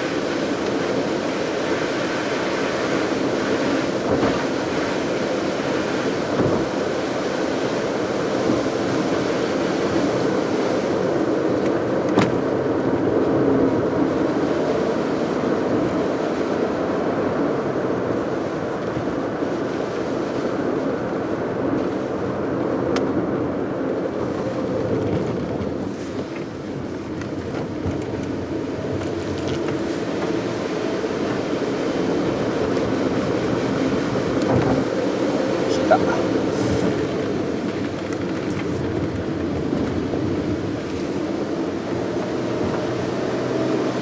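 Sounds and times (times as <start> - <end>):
car engine hum: 0.0 - 44.0
road and tyre noise: 0.0 - 44.0.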